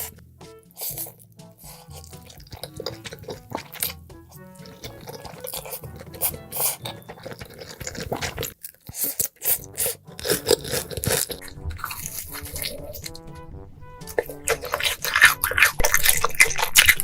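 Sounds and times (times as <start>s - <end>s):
close chewing and mouth noises: 0.0s - 17.0s.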